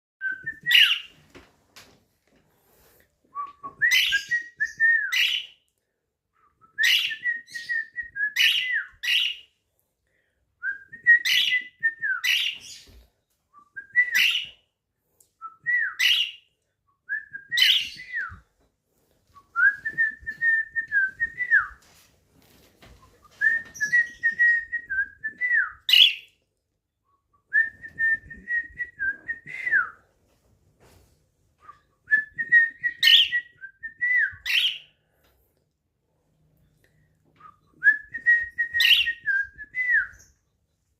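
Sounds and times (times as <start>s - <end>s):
budgerigar whistling and chirping: 8.4s - 9.4s, 25.9s - 26.3s.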